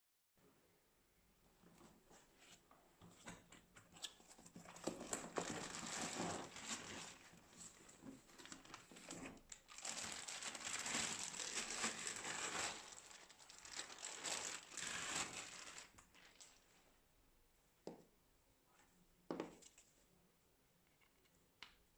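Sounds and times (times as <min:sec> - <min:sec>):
packaging crinkling and rustling: 0:04.0 - 0:16.9.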